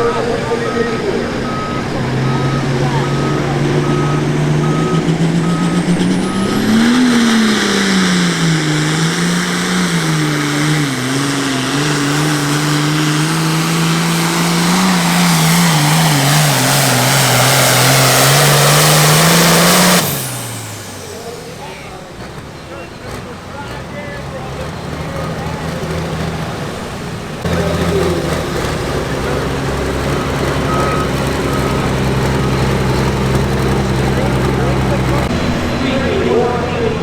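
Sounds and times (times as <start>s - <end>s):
reversing alarm beeping: 0.0s - 9.1s, 27.4s - 37.0s
diesel tractor engine under load: 0.0s - 37.0s.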